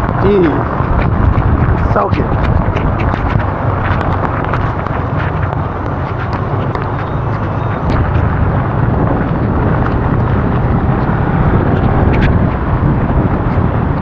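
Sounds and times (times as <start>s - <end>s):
heavy rain: 0.0s - 14.0s
raindrops ticking close by: 0.0s - 14.0s
traffic noise: 0.0s - 14.0s
wind rumbling on microphone: 0.0s - 14.0s.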